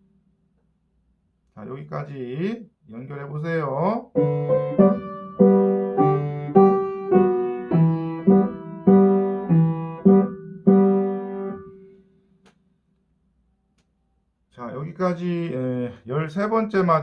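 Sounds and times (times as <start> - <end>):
piano melody with chords: 4.1 - 12.0.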